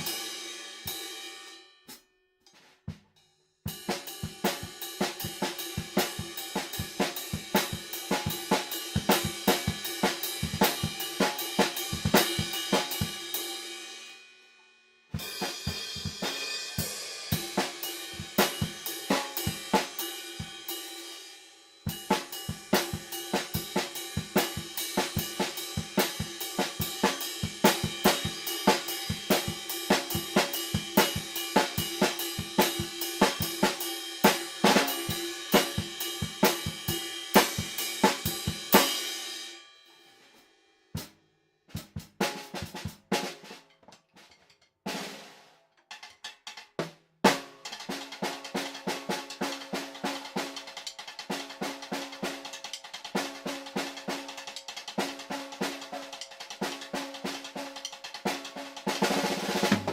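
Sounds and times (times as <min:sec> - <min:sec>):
snare drum: 0:03.8 - 0:13.2, 0:15.2 - 0:20.0, 0:22.0 - 0:39.0, 0:41.7 - 0:43.6, 0:46.0 - 0:59.9.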